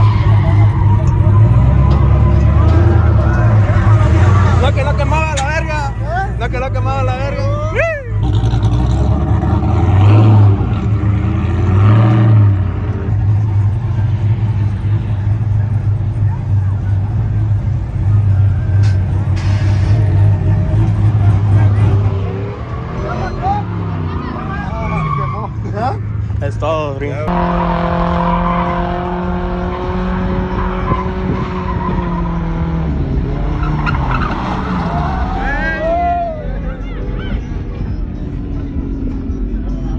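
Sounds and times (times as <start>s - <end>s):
tyres screeching on pavement: 0.0s - 12.7s, 18.0s - 26.4s, 27.4s - 37.6s
truck engine revving: 0.0s - 39.9s.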